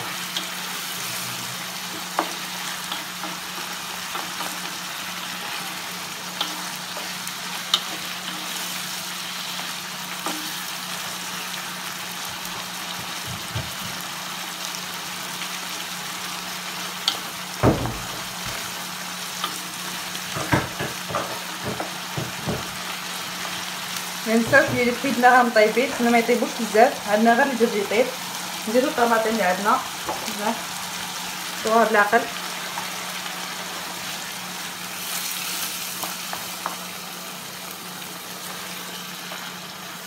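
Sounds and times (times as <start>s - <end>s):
food sizzling in oil: 0.0s - 40.0s
wooden spoon knocking on pan: 13.0s - 14.0s, 17.6s - 18.6s, 20.3s - 22.8s, 24.4s - 25.2s, 30.0s - 30.3s.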